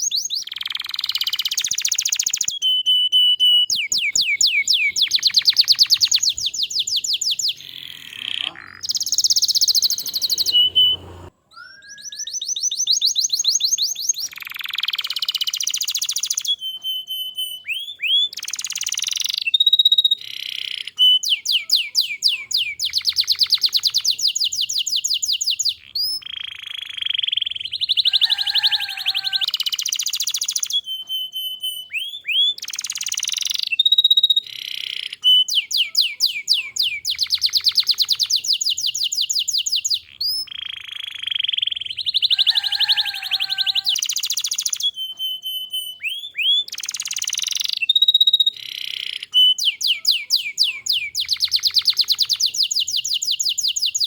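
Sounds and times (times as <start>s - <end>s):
canary singing: 0.0s - 54.0s.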